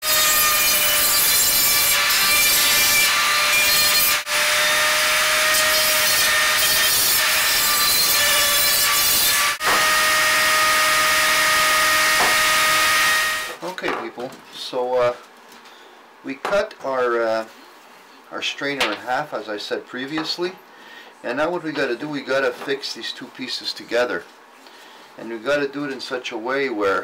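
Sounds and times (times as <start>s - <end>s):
power grinder grinding metal: 0.0s - 13.6s.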